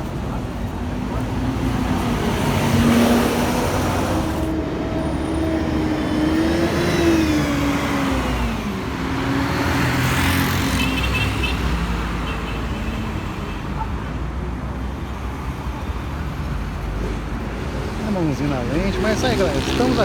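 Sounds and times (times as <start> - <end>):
traffic noise: 0.0 - 20.0
bus engine accelerating: 0.3 - 10.6.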